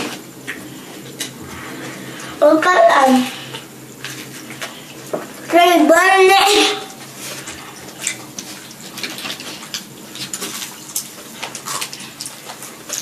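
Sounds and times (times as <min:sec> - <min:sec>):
crisp chewing crunches: 0:07.1 - 0:13.0.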